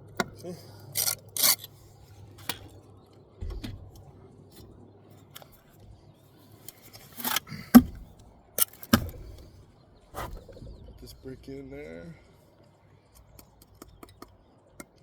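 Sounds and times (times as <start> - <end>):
sharp brick clicks: 6.8 - 9.6, 13.2 - 15.0.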